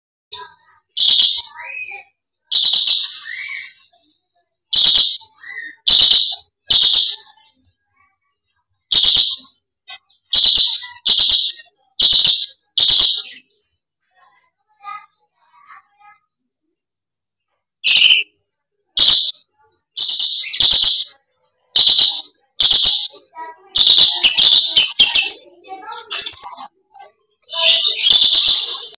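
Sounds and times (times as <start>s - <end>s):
parrot chattering: 1.0s - 1.9s, 2.5s - 3.9s, 4.7s - 7.3s, 8.9s - 9.5s, 10.3s - 13.4s, 19.0s - 19.4s, 20.0s - 21.2s, 21.8s - 28.9s.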